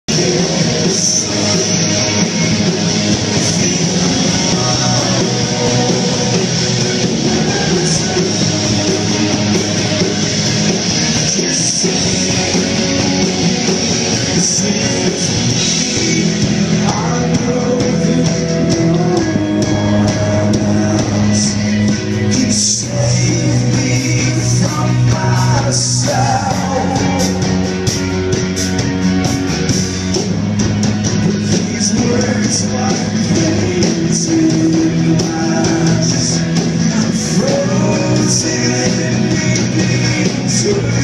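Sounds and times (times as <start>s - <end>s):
person singing: 0.0s - 28.1s, 31.2s - 41.0s
electric guitar: 0.0s - 41.0s
rock band playing: 0.0s - 41.0s.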